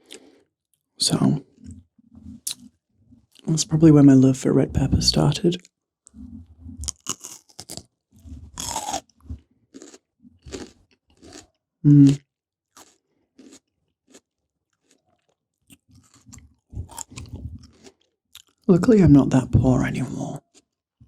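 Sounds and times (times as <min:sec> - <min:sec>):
pepper crunching while chewed: 0:02.4 - 0:02.7, 0:06.8 - 0:18.7, 0:20.4 - 0:20.8.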